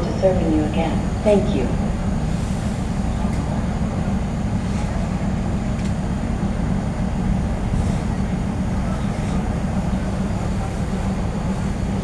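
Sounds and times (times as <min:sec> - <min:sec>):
passenger train rumbling: 0:00.0 - 0:12.0.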